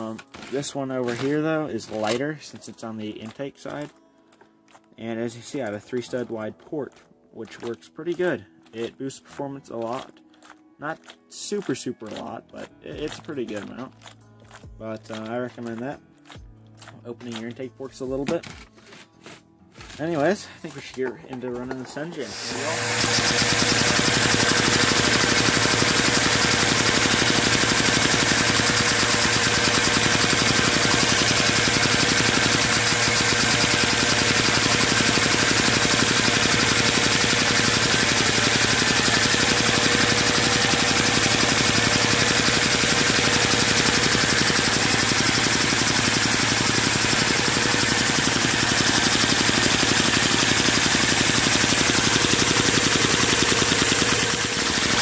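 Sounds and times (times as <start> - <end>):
plastic engine clatter: 0.0 - 4.4, 22.8 - 55.0.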